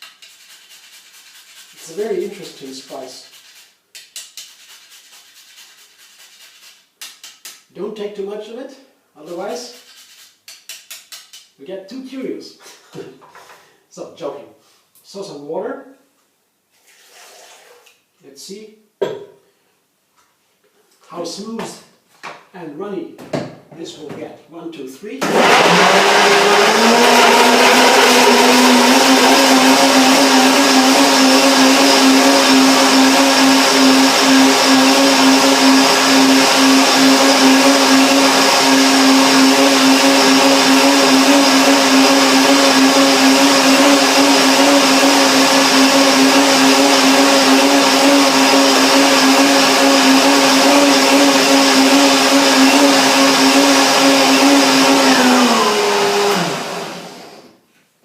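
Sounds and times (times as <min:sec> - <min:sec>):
blender motor whine: 0:25.2 - 0:57.5.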